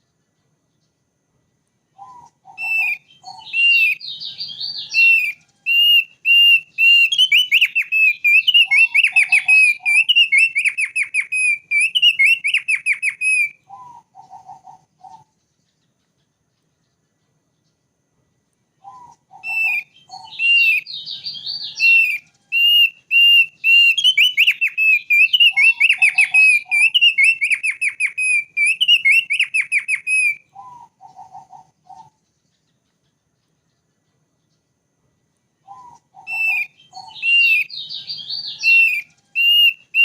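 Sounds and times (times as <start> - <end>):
bird singing whistles and trills: 1.9 - 17.8, 18.7 - 34.6, 35.6 - 40.0.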